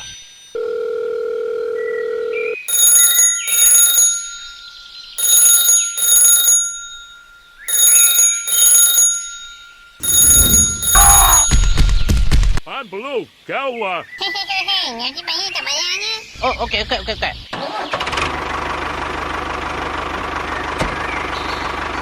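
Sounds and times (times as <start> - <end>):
telephone ringing: 0.0 - 12.5
steady electronic tone: 9.8 - 12.4.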